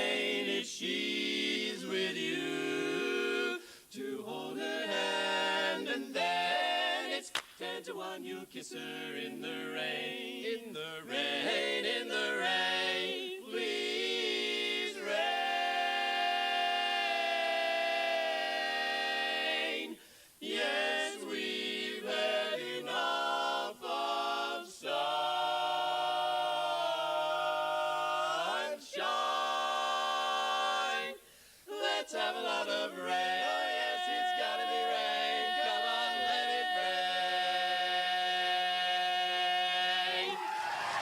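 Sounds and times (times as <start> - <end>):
male quartet singing in harmony: 0.0 - 41.0
singers breathing: 3.6 - 3.9, 20.0 - 20.4, 31.2 - 31.7.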